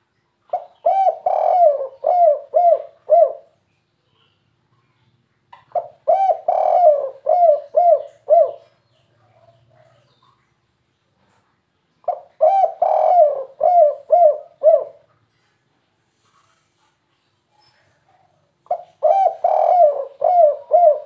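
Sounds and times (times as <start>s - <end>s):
dove cooing: 0.5s - 3.6s, 5.7s - 8.8s, 12.0s - 15.1s, 18.7s - 21.0s.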